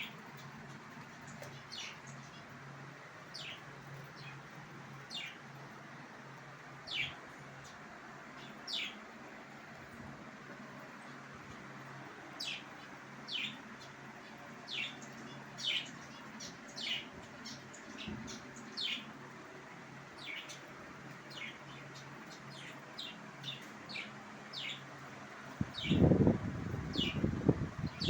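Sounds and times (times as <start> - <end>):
faint steady hum: 0.0 - 28.0
lovebirds chirping: 0.0 - 28.0.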